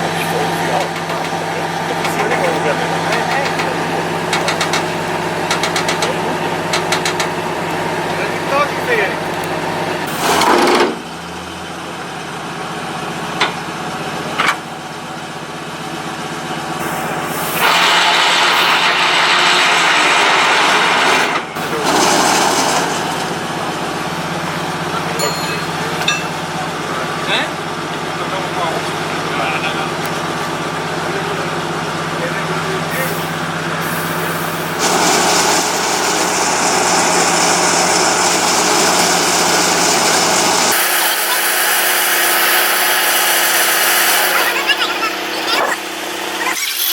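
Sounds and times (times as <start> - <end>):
truck engine idling: 0.0 - 18.4, 21.4 - 46.4.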